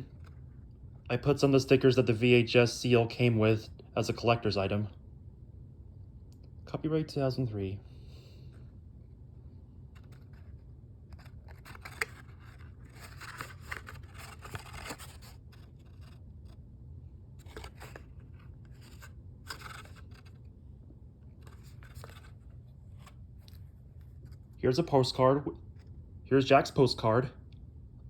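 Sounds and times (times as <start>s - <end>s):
cardboard and paper rustling: 9.9s - 16.6s, 17.4s - 20.5s, 21.2s - 24.6s.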